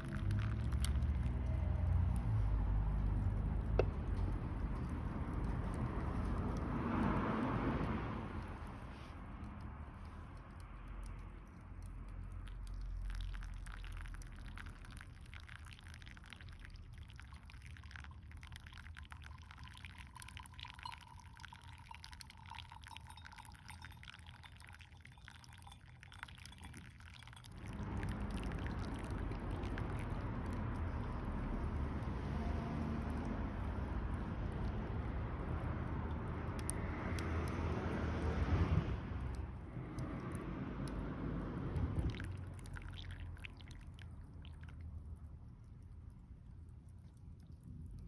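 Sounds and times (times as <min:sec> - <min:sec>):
water pouring in thin stream: 0:00.0 - 0:48.0
faint ringing of vessel: 0:18.8 - 0:29.2.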